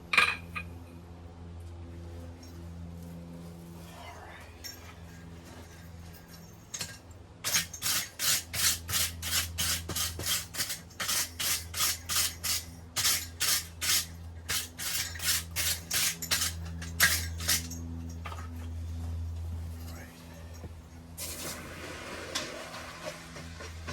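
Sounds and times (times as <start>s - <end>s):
steady low hum: 0.0s - 23.9s
scraping strokes on metal: 7.4s - 17.8s.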